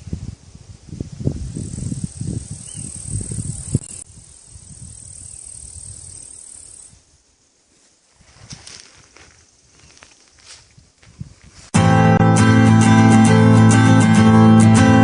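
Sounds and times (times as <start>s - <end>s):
insects chirring: 0.1s - 11.7s.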